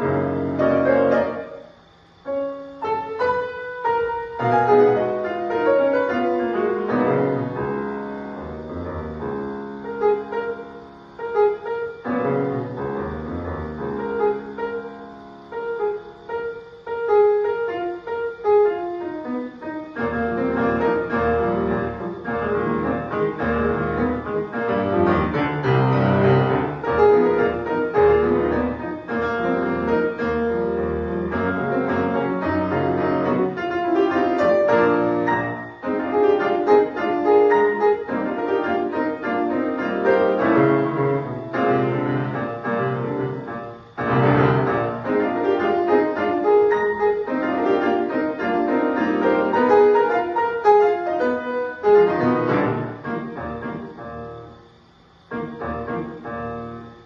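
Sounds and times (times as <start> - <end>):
classical piano music: 0.0 - 57.0.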